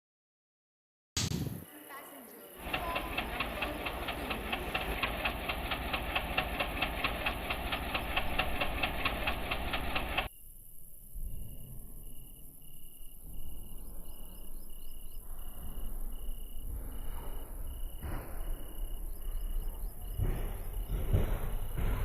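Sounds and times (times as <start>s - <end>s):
cricket chirping: 1.6s - 22.0s
low background rumble: 2.6s - 10.3s.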